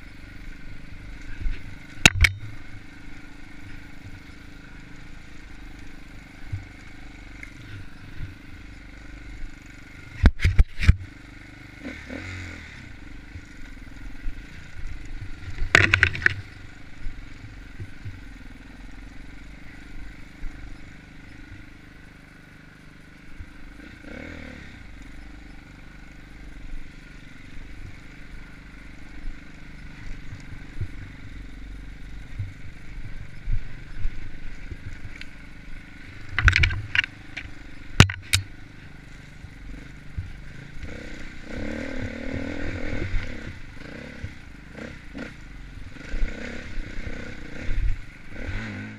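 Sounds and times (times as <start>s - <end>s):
dirt bike engine running: 0.0s - 48.9s
bike knocking and clattering: 15.2s - 16.6s, 36.2s - 38.6s.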